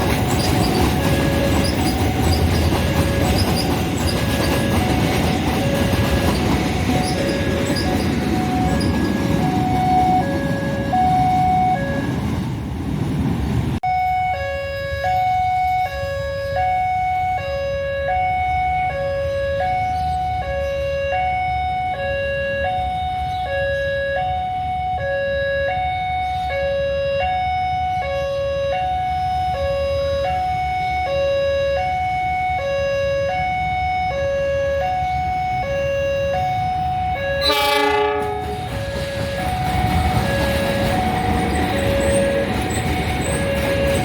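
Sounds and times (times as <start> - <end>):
level crossing two-tone alarm: 0.0 - 12.3, 13.8 - 44.0
train horn blast: 36.2 - 39.6.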